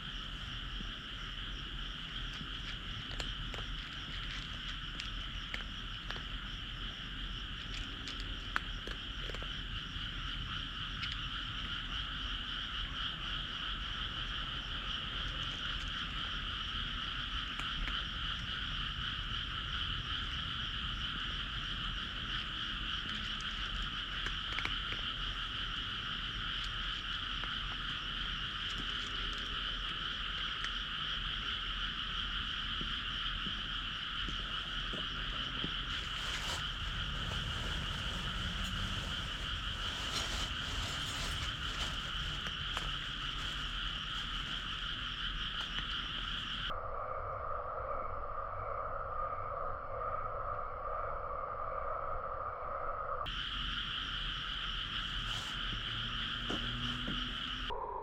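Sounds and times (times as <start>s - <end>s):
chorus of frogs calling: 9.8s - 47.1s, 53.2s - 58.0s.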